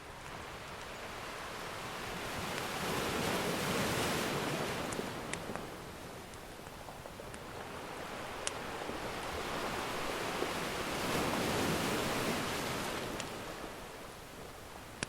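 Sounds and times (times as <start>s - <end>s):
ocean wave breaking on shore: 0.1s - 6.2s, 7.4s - 14.1s
wood fire crackling: 4.9s - 9.2s.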